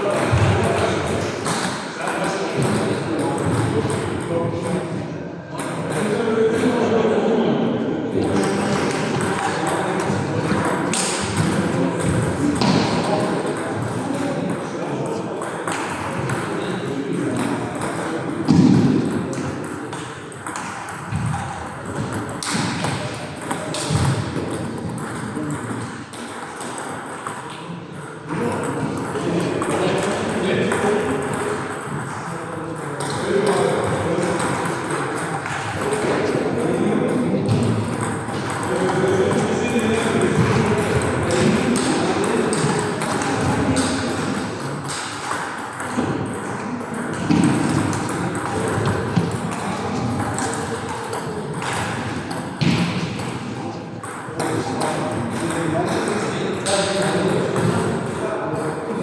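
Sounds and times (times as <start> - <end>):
murmur of voices: 0.0 - 59.0
steady background noise: 0.0 - 59.0
table tennis balls clicking: 37.5 - 53.3.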